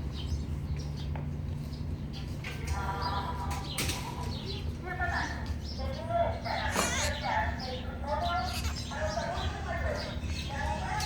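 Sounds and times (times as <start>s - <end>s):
pet bird chirping: 5.6s - 11.0s.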